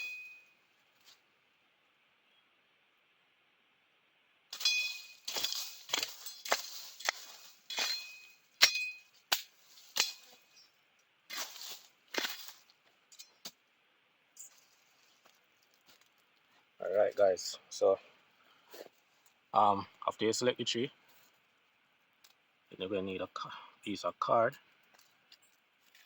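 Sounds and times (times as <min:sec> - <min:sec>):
sharp metallic strikes: 0:04.5 - 0:10.4.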